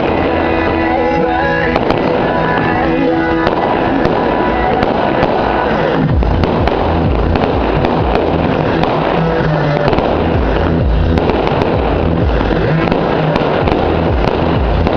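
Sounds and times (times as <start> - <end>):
fireworks bangs and crackles: 0.0 - 14.9
loud music: 0.0 - 14.9.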